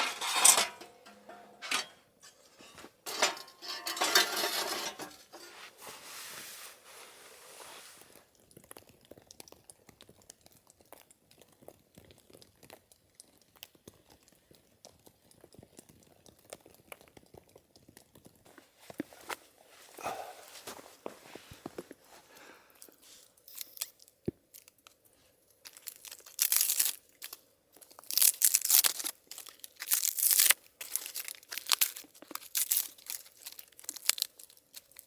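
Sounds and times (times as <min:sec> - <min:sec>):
metal camp gear clinking: 0:00.0 - 0:06.6.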